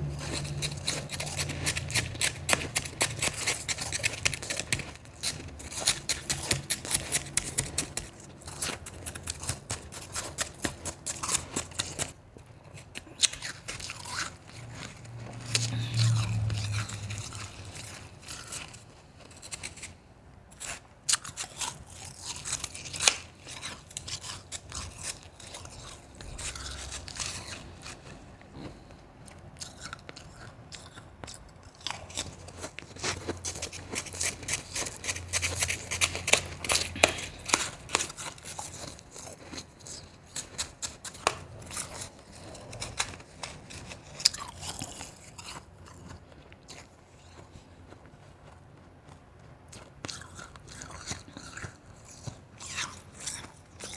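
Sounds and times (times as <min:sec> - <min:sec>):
chewing crunchy ice: 0:00.0 - 0:53.9.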